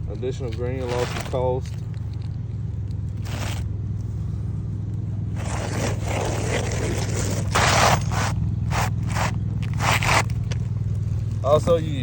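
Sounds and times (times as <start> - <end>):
roofing shingles scraping and rustling: 0.5 - 1.8, 3.2 - 3.7, 5.4 - 10.7.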